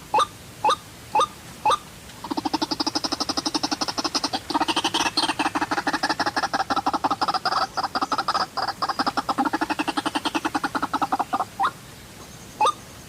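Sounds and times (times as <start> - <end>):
waterhen calling: 0.0 - 13.0.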